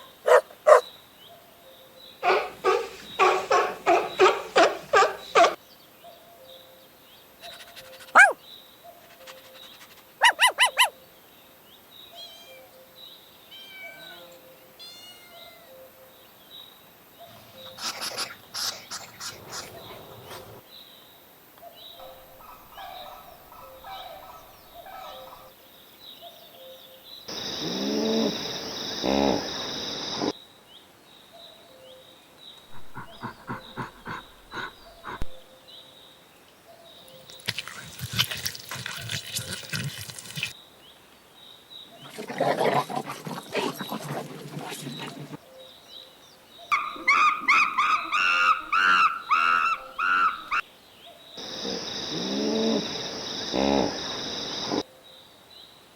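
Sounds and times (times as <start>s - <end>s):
animal chirps and cries: 0.0s - 0.8s, 2.2s - 5.6s, 7.4s - 8.4s, 10.2s - 11.0s, 13.5s - 15.7s, 46.7s - 50.6s
rapid rhythmic animal calls: 0.0s - 0.8s, 2.2s - 5.6s, 7.4s - 11.0s, 17.2s - 20.6s, 22.0s - 25.5s, 27.3s - 30.3s, 32.7s - 35.6s, 42.0s - 45.4s, 46.7s - 50.6s, 51.4s - 54.8s.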